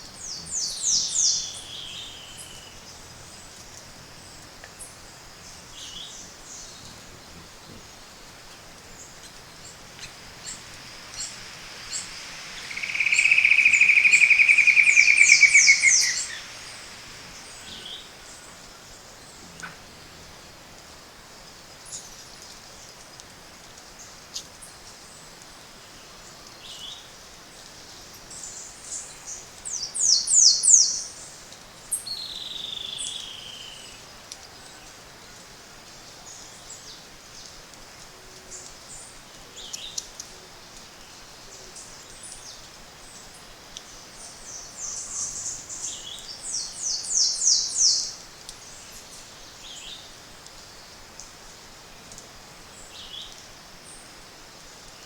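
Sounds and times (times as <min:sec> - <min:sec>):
faint steady hiss: 0:00.0 - 0:55.0
bird song of downward-sweeping notes: 0:00.1 - 0:20.6, 0:44.1 - 0:50.1
short high bird calls: 0:09.2 - 0:18.1.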